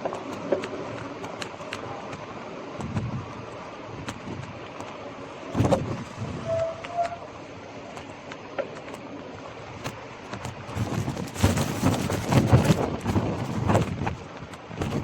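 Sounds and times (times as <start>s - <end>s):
bike rattling: 0.0s - 7.3s, 9.6s - 15.0s
wind on microphone: 2.8s - 4.6s, 5.5s - 7.3s, 10.4s - 15.0s.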